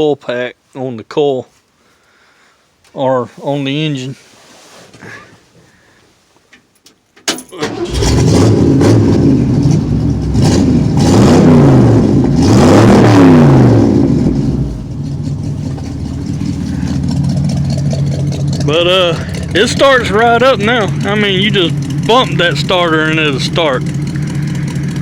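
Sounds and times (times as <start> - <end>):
engine starter turning over: 7.4 - 11.6
truck engine revving and idling: 7.7 - 25.0.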